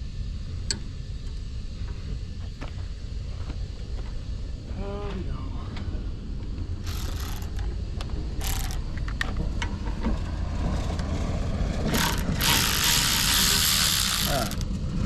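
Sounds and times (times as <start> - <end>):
ratchet wrench clicking: 6.8 - 7.7, 8.4 - 9.1, 11.9 - 14.7
loud hiss: 11.9 - 14.6.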